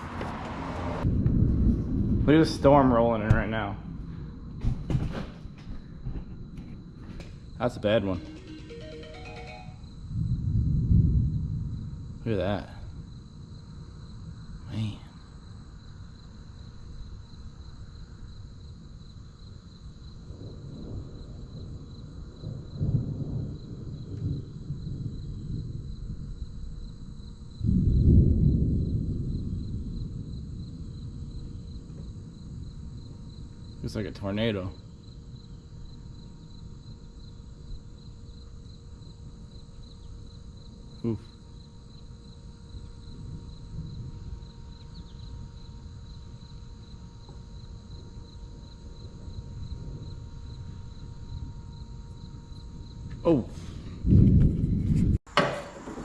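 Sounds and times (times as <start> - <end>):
thunder rumbling: 0.0 - 8.6, 9.9 - 15.1, 20.2 - 36.1, 42.4 - 55.2
crickets chirping: 0.0 - 56.0.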